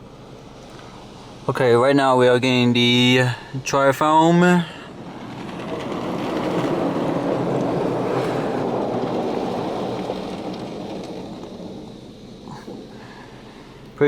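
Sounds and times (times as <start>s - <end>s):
car wash foam spray rushing: 4.1s - 14.0s.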